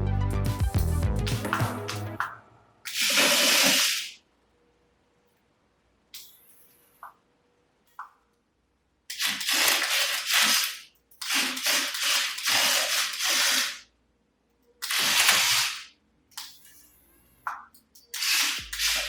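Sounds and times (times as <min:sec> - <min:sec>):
toy electric motors and gears: 0:02.9 - 0:04.2, 0:09.1 - 0:13.9, 0:14.8 - 0:17.3, 0:18.0 - 0:19.0.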